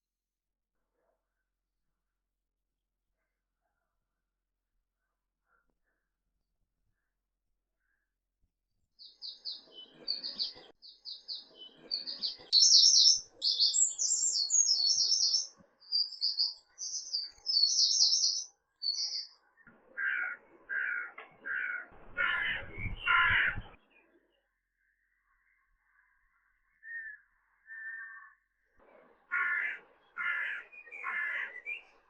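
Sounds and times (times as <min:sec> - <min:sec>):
bird chirping high phrases: 0:09.0 - 0:19.4, 0:22.1 - 0:24.5, 0:26.8 - 0:28.5, 0:30.1 - 0:32.0
bird giving lower coarse calls: 0:20.0 - 0:23.8, 0:29.3 - 0:31.8.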